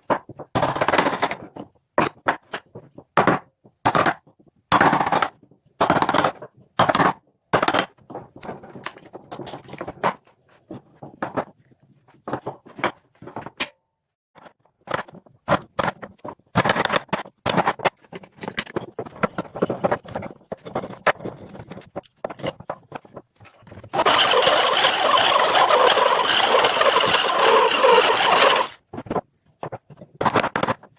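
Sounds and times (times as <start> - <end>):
noisy power tool: 23.9 - 28.8.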